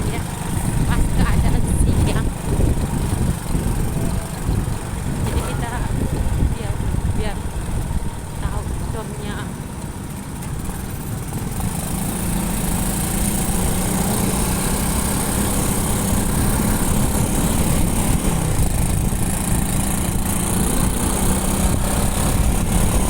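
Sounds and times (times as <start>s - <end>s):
motorcycle engine running: 0.0s - 23.0s
road and wind noise: 0.0s - 23.0s.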